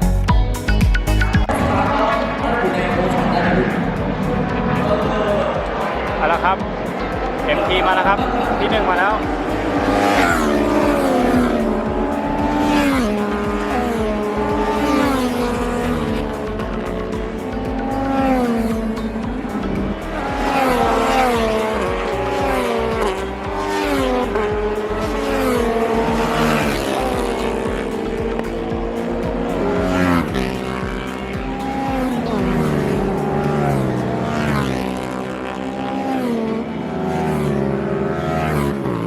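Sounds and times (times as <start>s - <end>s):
race motorcycles passing: 0.2s - 39.0s.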